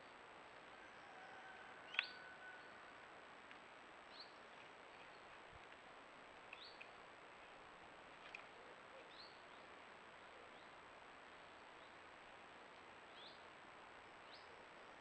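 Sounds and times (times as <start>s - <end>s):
bird chirps: 1.9s - 2.7s.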